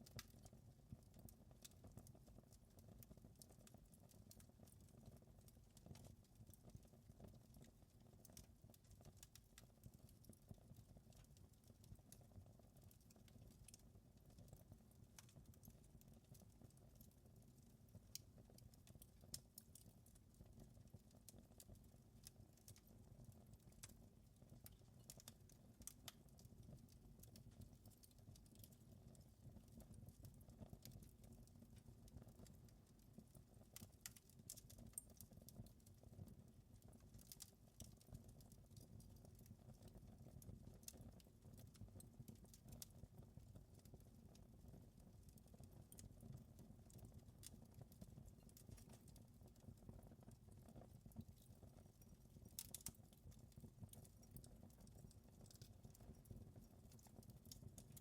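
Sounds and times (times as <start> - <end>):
wood fire popping and snapping: 9.2 - 10.1, 18.0 - 28.9, 33.7 - 35.9, 36.8 - 42.9, 45.3 - 46.0, 46.9 - 49.6, 52.4 - 58.0.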